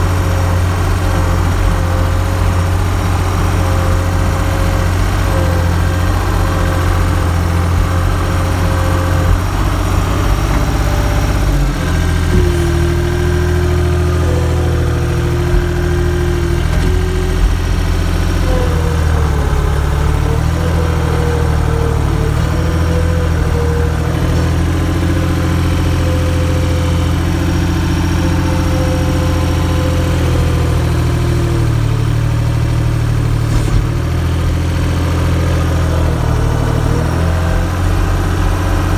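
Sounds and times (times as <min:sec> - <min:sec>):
vehicle engine running: 0:00.0 - 0:38.9
whine changing pitch: 0:05.8 - 0:31.7.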